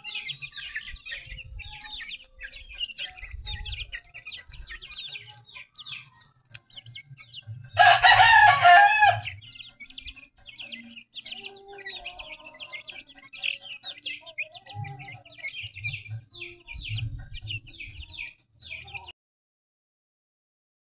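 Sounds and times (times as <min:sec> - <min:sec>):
chicks peeping: 0:00.0 - 0:19.1
rooster crowing: 0:07.8 - 0:09.4.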